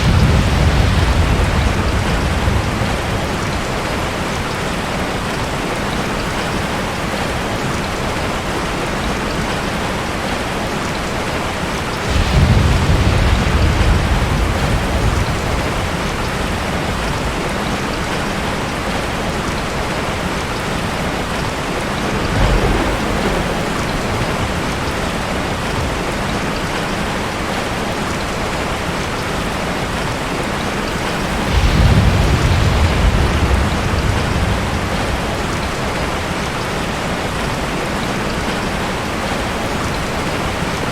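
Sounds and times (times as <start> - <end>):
thunder rumbling: 0.0 - 4.4, 11.8 - 27.2, 30.9 - 36.5
steady rain: 0.0 - 40.9.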